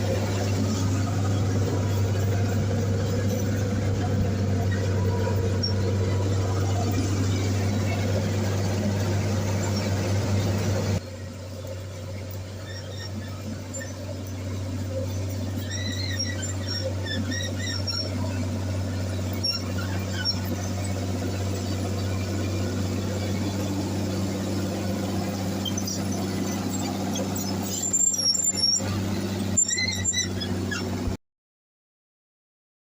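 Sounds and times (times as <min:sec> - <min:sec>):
bulldozer diesel engine droning: 0:00.0 - 0:31.2
high-pitched machine squeals: 0:00.0 - 0:31.2.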